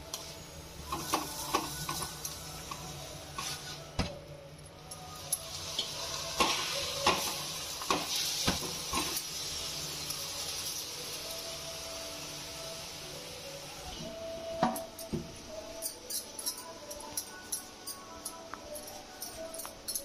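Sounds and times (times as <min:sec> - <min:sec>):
ghee sizzling on a pan: 0:00.0 - 0:03.9, 0:05.0 - 0:14.0.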